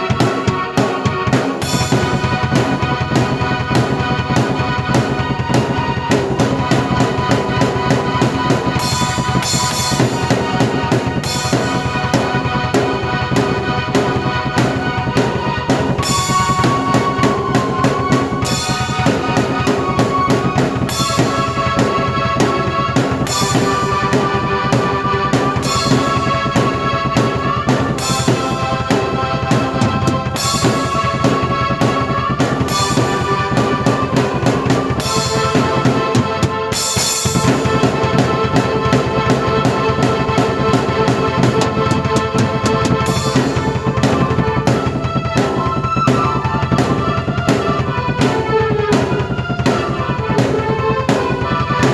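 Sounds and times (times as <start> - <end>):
drum kit beat: 0.0 - 51.9
held keyboard notes: 0.0 - 51.9
cymbal crashes: 18.2 - 33.8, 40.4 - 44.3.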